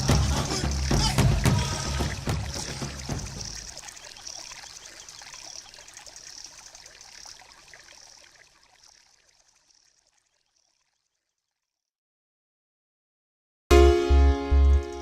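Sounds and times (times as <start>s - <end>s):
hissing shaker-like music beat: 0.0s - 4.3s.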